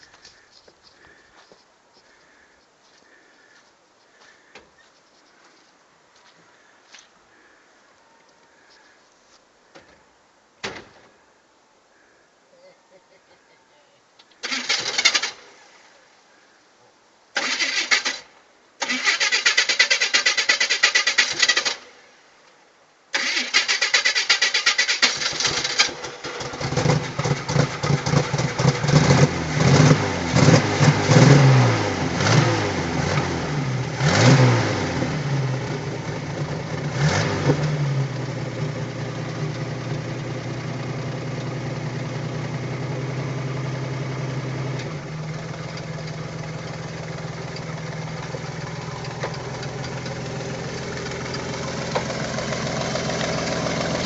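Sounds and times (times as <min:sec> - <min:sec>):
tractor engine revving and running: 0:14.4 - 0:15.4, 0:23.2 - 0:54.0
tractor engine starter cranking: 0:14.4 - 0:15.5, 0:17.4 - 0:21.8, 0:23.2 - 0:28.8, 0:44.8 - 0:54.0.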